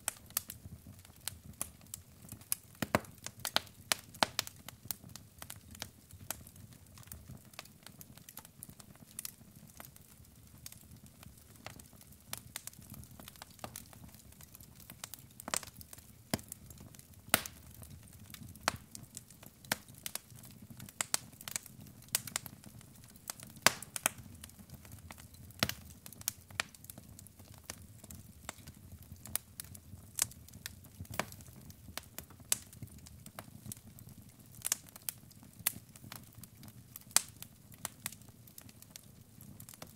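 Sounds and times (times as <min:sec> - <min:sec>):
logs crackling and popping: 0:00.0 - 0:39.9.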